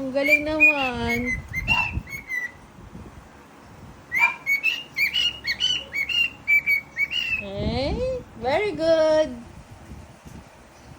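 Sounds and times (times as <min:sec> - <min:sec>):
cockatiel whistling: 0:00.2 - 0:02.6, 0:04.1 - 0:07.4.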